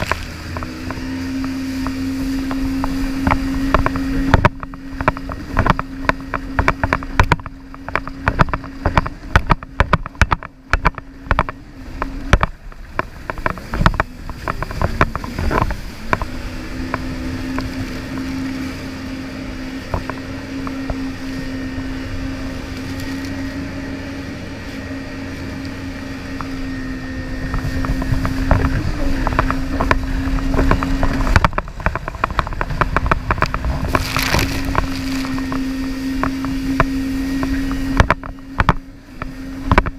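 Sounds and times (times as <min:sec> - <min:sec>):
rapid engine knocks: 0:00.0 - 0:18.3, 0:27.4 - 0:39.9
jet ski engine whining: 0:00.0 - 0:39.9.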